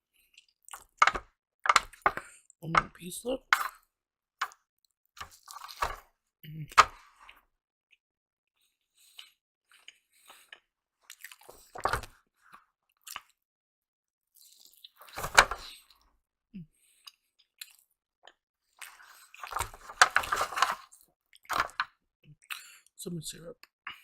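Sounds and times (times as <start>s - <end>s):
person chewing food: 0.1s - 2.5s, 5.2s - 6.1s, 8.9s - 13.4s, 14.3s - 16.0s, 16.8s - 22.9s.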